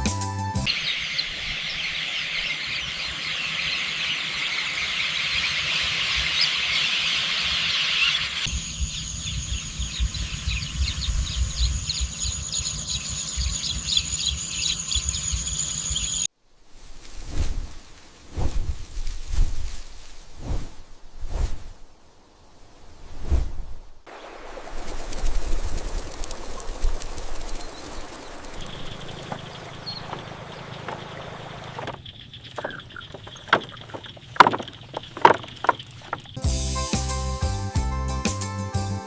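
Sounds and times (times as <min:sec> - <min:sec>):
birds chirping chorus: 0:00.7 - 0:16.3, 0:25.8 - 0:36.4
wind rumbling on microphone: 0:08.5 - 0:15.5, 0:16.6 - 0:36.4
high insect drone: 0:08.5 - 0:16.3, 0:24.7 - 0:36.6.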